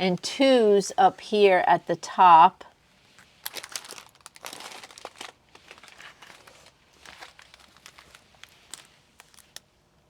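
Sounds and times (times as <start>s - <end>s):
plastic film crinkling: 3.1s - 9.7s.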